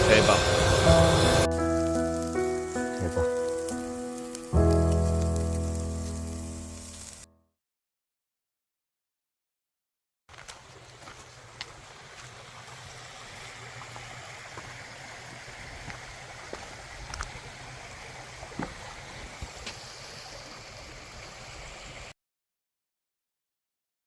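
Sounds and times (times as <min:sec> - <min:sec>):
meat sizzling on a grill: 0:00.0 - 0:07.3
wood fire popping and crackling: 0:01.4 - 0:07.2.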